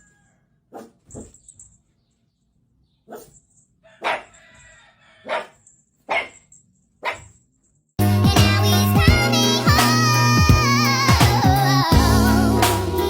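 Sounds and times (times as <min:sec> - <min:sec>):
dog barking: 0:00.7 - 0:01.4, 0:03.1 - 0:04.4, 0:05.2 - 0:06.4, 0:07.0 - 0:07.4.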